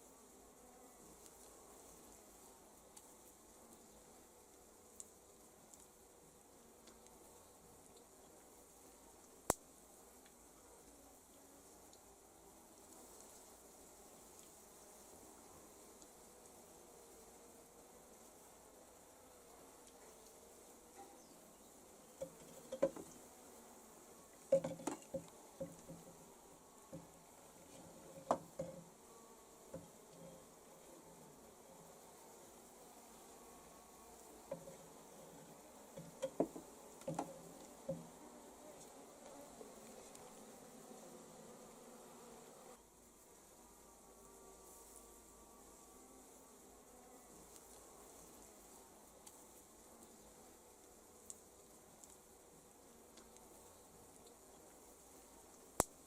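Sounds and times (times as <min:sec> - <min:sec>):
honeybees buzzing: 0:00.0 - 0:56.0.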